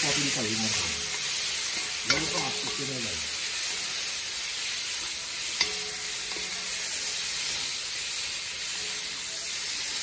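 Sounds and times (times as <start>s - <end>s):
shrimp sizzling in hot oil: 0.0s - 10.0s
metal spoon clinking on pot: 1.1s - 3.0s, 5.6s - 6.8s.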